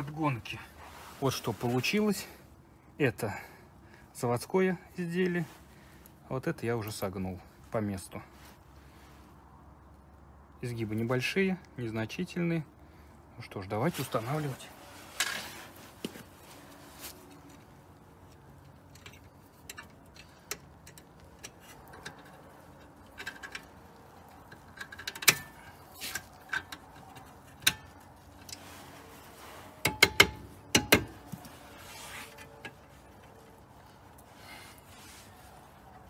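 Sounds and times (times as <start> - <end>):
metal brackets clicking and clinking: 18.6 - 28.6, 29.8 - 31.6.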